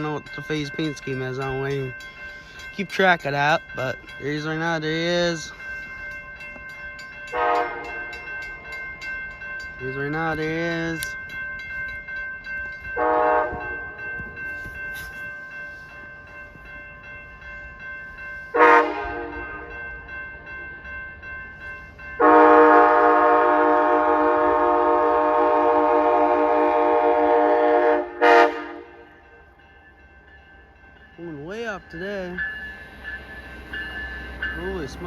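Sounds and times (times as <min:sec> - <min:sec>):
locomotive air horn blasts: 0:07.4 - 0:08.0, 0:13.0 - 0:13.8, 0:18.5 - 0:19.4, 0:22.2 - 0:29.0.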